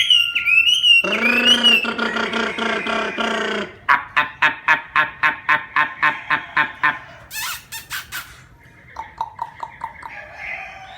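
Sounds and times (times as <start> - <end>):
songbird singing: 0.0 - 4.6, 8.5 - 10.9.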